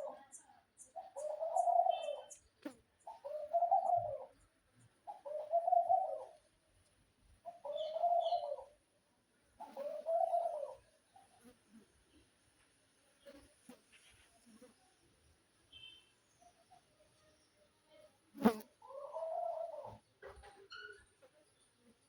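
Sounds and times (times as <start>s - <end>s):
pigeon cooing: 0.0s - 2.4s, 3.1s - 4.4s, 5.0s - 6.5s, 7.5s - 8.8s, 9.6s - 11.6s, 18.8s - 20.1s.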